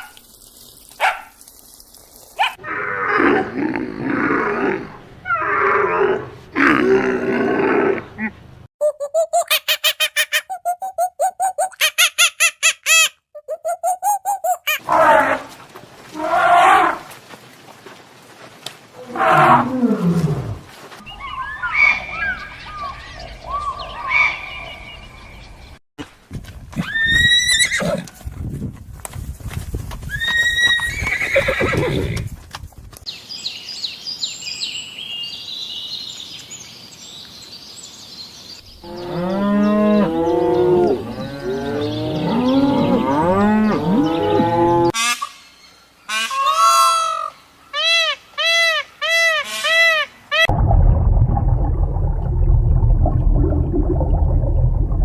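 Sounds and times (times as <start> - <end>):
small birds chirping: 21.0 - 25.8.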